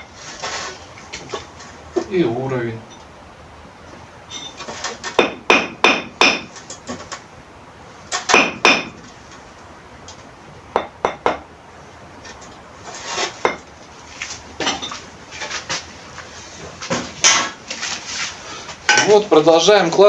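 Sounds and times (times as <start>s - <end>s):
bricks tapped into mortar: 5.1s - 6.5s, 8.1s - 9.0s.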